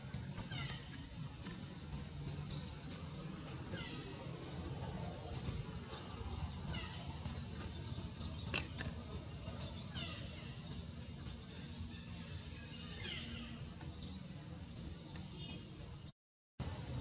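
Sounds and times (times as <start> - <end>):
steady low rumble: 0.0 - 12.6
birds chirping: 0.0 - 17.0.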